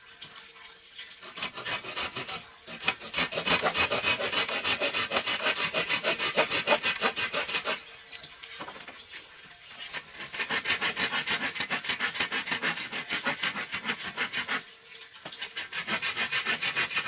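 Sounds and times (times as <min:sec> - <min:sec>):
hand tool scraping wood: 0:01.2 - 0:07.9, 0:09.8 - 0:14.6, 0:15.3 - 0:17.0.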